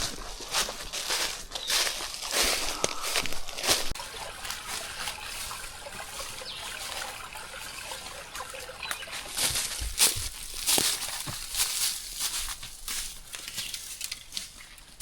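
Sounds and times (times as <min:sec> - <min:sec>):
sharp crunching: 0:00.0 - 0:04.0, 0:09.3 - 0:15.0
water trickling: 0:03.6 - 0:11.8.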